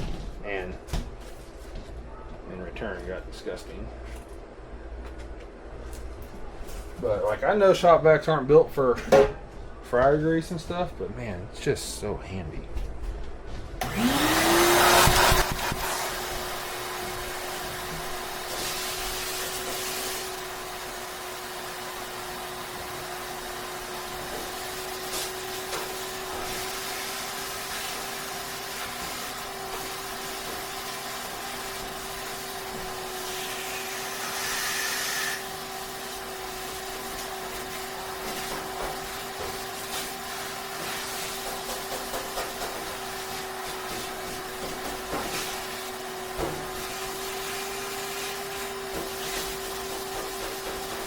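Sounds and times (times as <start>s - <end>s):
shop vac motor whine: 13.8s - 51.0s.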